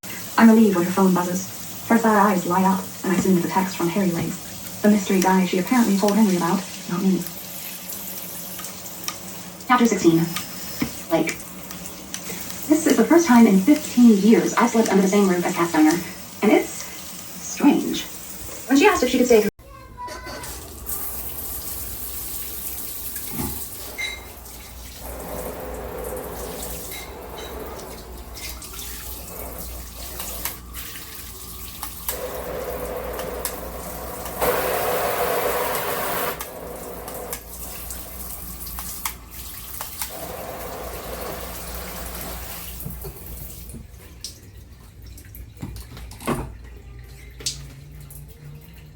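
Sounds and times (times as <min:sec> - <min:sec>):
water spraying from shower head: 0:20.9 - 0:43.4.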